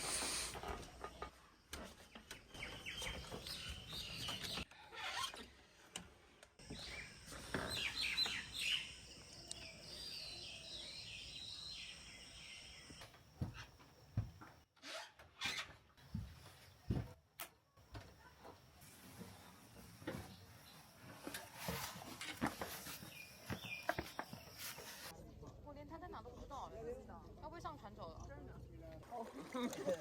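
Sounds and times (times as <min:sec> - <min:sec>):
high-pitched hiss: 0:00.0 - 0:00.6
birds chirping: 0:06.6 - 0:13.1, 0:22.9 - 0:25.1.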